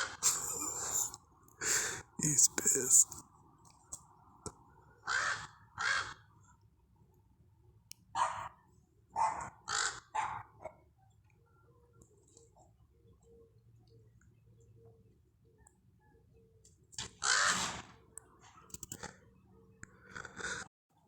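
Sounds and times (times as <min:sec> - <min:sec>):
crows cawing harshly: 0:05.0 - 0:06.3, 0:09.4 - 0:10.4, 0:17.1 - 0:17.8, 0:20.0 - 0:20.7.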